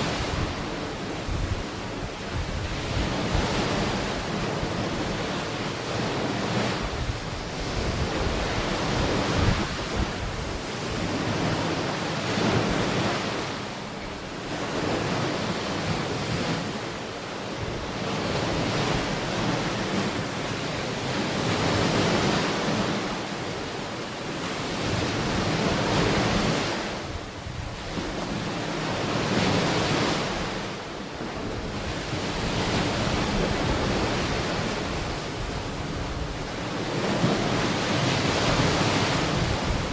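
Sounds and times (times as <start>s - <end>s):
ocean waves on shore: 0.0s - 39.9s
wind on microphone: 0.0s - 39.9s.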